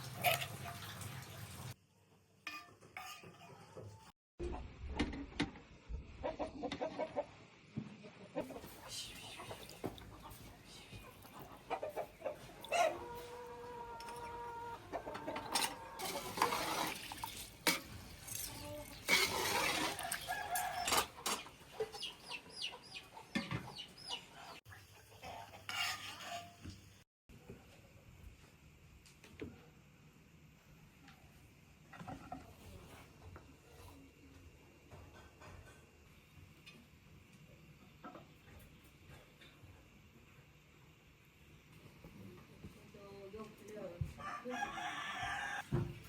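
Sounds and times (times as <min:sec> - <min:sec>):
chickens clucking: 0:06.2 - 0:16.6, 0:20.1 - 0:25.7
rooster crowing: 0:19.9 - 0:21.1, 0:44.2 - 0:45.7.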